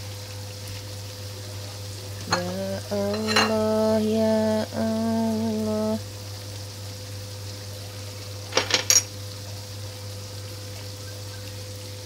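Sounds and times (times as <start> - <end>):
eggplant sizzling in oil: 0.0 - 12.0
low hum: 2.3 - 6.1
metallic knocks on cookware: 3.1 - 3.6.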